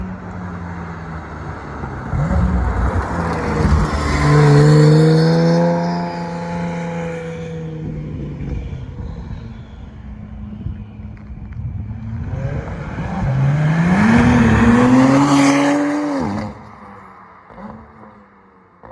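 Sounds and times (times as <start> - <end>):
sports car accelerating past: 1.7 - 8.1, 12.1 - 18.3.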